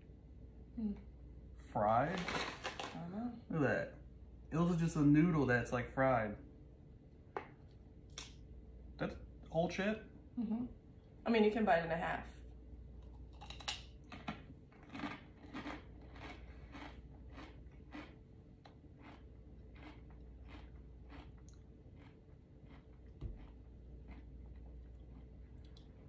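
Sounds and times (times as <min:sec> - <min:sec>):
crunching fried snack chip: 0:13.3 - 0:18.2, 0:19.0 - 0:25.9.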